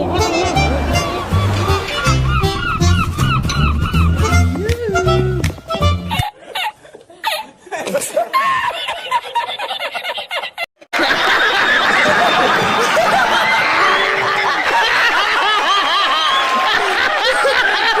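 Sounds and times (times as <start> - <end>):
crowd laughing: 0.0 - 5.4, 6.0 - 18.0.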